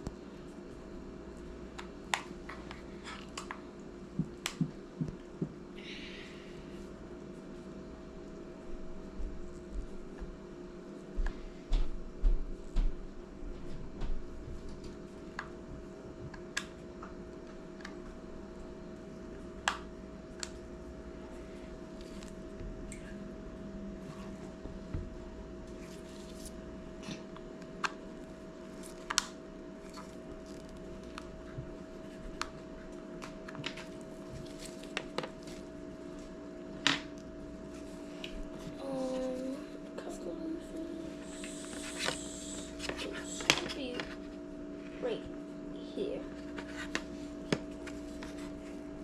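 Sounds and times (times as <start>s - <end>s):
steady hum: 0.0s - 49.0s.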